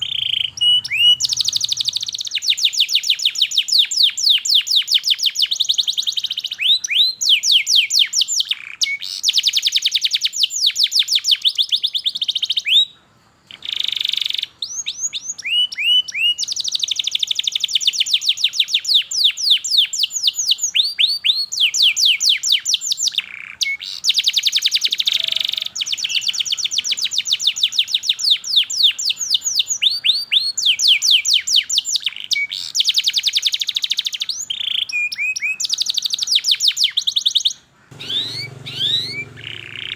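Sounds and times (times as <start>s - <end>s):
canary singing fast trills: 0.0s - 39.9s.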